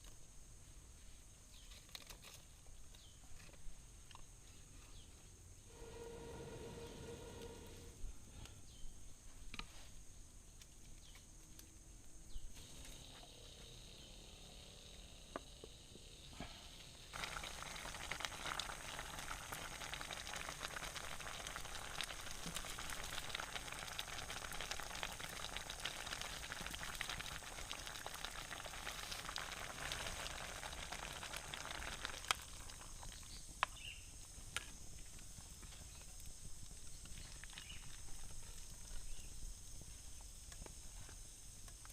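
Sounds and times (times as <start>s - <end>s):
food frying in hot oil: 12.6s - 34.3s, 34.9s - 39.9s.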